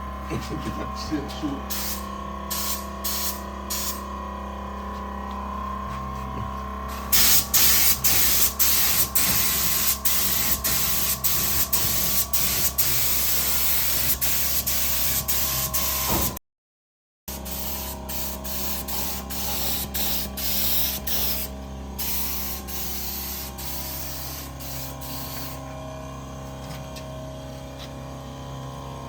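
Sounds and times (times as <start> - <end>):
steady mechanical hum: 0.0 - 16.4, 17.3 - 29.0
spray gun hissing bursts: 1.7 - 4.0, 7.1 - 16.4, 17.3 - 25.6.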